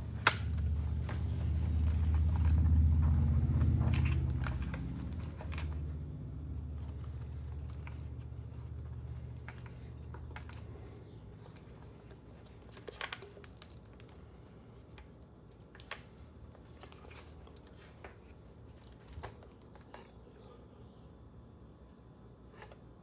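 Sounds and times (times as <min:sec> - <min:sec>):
plastic parts clicking and rattling: 0:00.0 - 0:05.9, 0:06.8 - 0:14.2
low room hum: 0:00.0 - 0:23.0.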